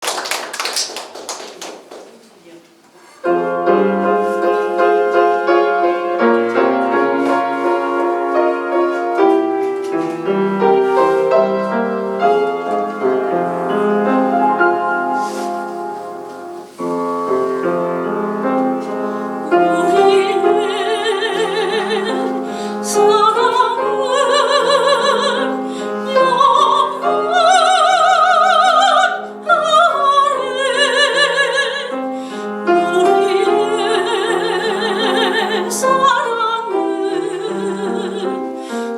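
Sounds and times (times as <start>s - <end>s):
solo piano: 3.2s - 38.9s
soprano singing operatically: 19.4s - 38.9s.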